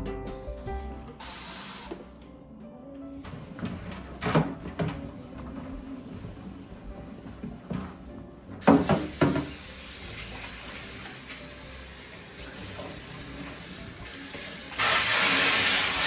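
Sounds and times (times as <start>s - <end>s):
spraying hiss: 1.2s - 2.0s, 14.5s - 16.0s.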